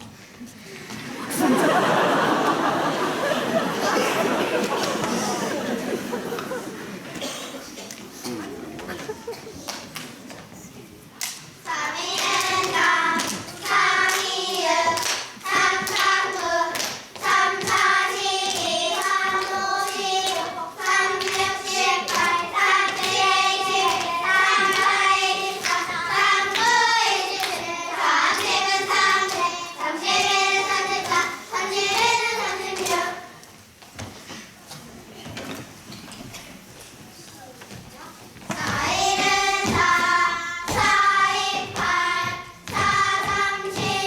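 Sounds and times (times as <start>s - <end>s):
children singing in unison: 1.2s - 7.4s, 11.7s - 33.4s, 38.5s - 44.0s.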